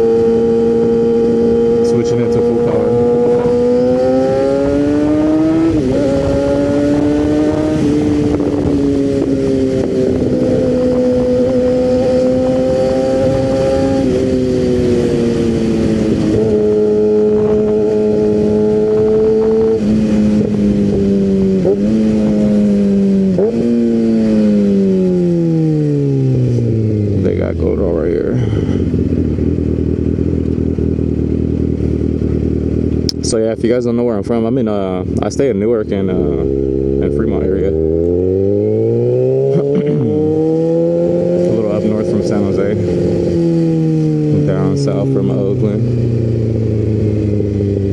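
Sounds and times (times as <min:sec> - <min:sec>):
wind noise: 0:00.0 - 0:33.2
motorcycle engine shifting gears: 0:00.0 - 0:47.9.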